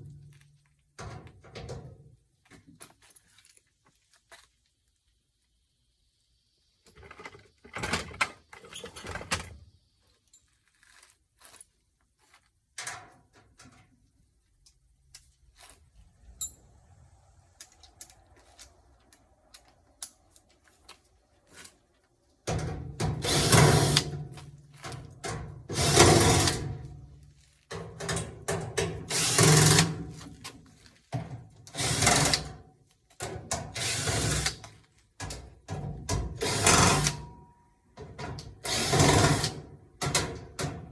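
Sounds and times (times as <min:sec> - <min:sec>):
power drill running: 0:29.1 - 0:29.9, 0:33.8 - 0:34.5, 0:36.4 - 0:37.1.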